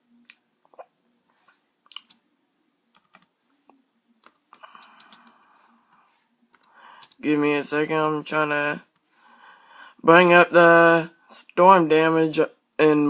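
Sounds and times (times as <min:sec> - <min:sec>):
faint keyboard typing: 0:02.9 - 0:08.3.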